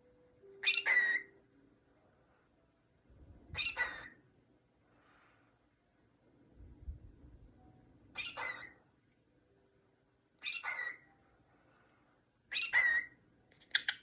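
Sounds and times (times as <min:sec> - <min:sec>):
cockatiel calling: 0:00.6 - 0:01.4, 0:03.6 - 0:04.2, 0:08.2 - 0:08.8, 0:10.4 - 0:11.1, 0:12.5 - 0:14.0.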